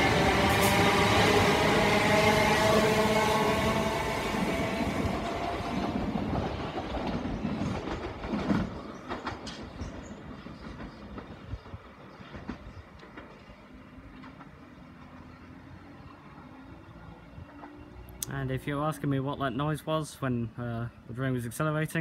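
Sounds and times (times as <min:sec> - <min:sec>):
train running rumble: 0:00.0 - 0:15.2
train wheels clicking over rail joints: 0:04.7 - 0:15.1.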